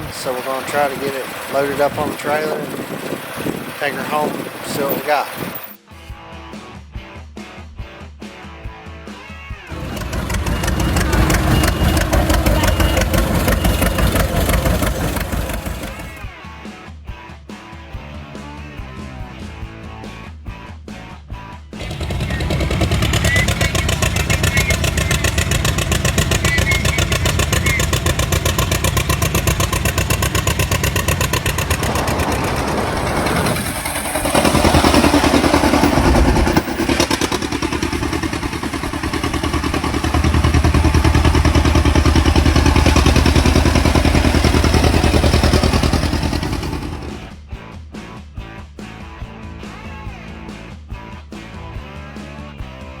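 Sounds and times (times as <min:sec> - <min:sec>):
engine running: 0:00.0 - 0:05.8, 0:09.7 - 0:16.3, 0:21.8 - 0:47.4.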